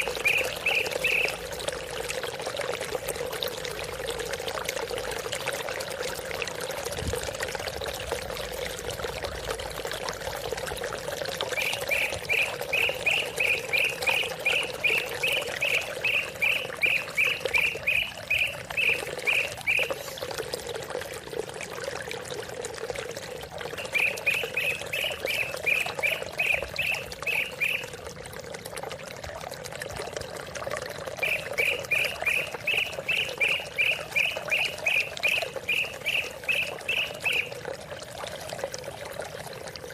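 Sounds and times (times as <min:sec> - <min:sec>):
bird repeating quick chirps: 0:00.0 - 0:01.3, 0:11.6 - 0:20.0, 0:23.8 - 0:27.8, 0:31.2 - 0:37.5
running water: 0:00.0 - 0:39.9.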